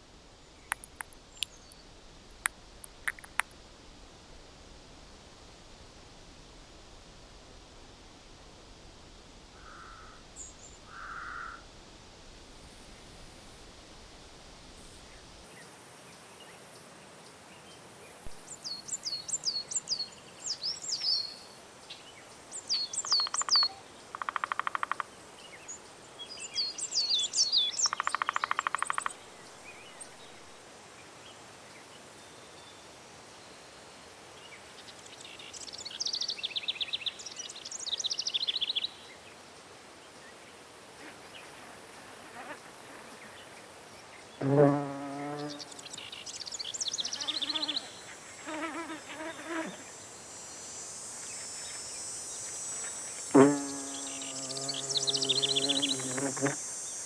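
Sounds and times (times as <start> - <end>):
faint countryside hiss: 0.0 - 57.0
songbirds singing: 0.7 - 3.6, 17.5 - 30.4, 43.0 - 50.1, 51.2 - 57.0.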